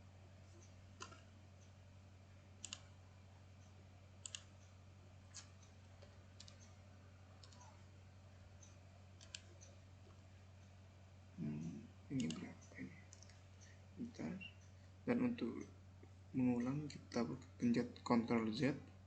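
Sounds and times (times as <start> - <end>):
faint electrical hum: 0.0 - 19.0
computer mouse clicking: 0.5 - 1.7, 2.6 - 2.9, 3.6 - 4.7, 5.3 - 6.8, 7.4 - 7.7, 8.6 - 10.2, 12.1 - 13.7.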